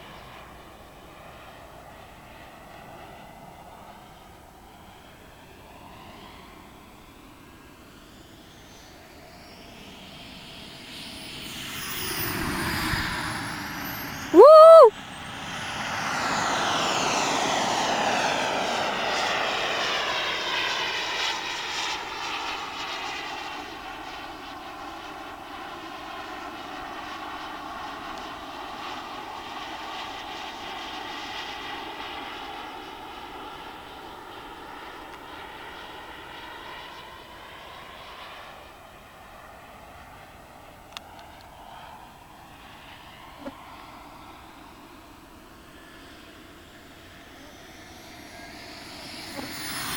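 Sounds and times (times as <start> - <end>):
jet turbine flyby whoosh: 7.9 - 14.4, 43.8 - 49.9
loud rising and falling tone: 10.6 - 14.9, 46.8 - 49.9.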